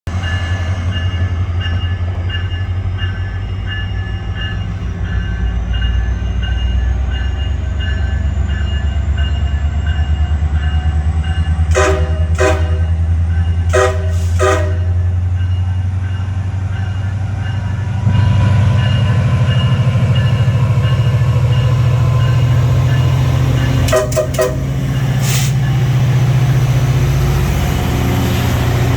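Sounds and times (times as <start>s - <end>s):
diesel locomotive rumbling: 0.0s - 28.9s
train horn blasts: 11.6s - 15.2s, 23.6s - 25.5s.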